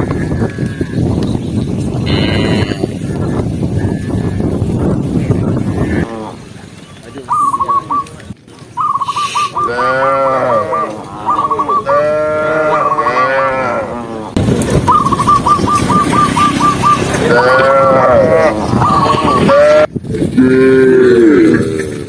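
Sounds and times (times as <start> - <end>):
cows mooing: 2.0 - 4.5, 5.6 - 6.5, 9.6 - 14.4, 16.0 - 22.0.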